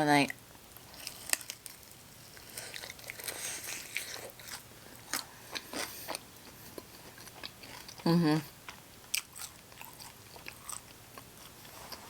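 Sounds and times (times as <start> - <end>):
person chewing chicken wings: 2.4 - 8.1, 8.7 - 12.0.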